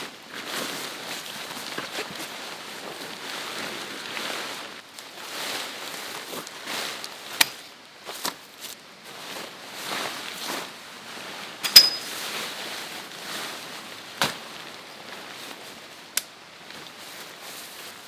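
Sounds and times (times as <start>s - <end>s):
short metallic ring: 11.7s - 12.1s.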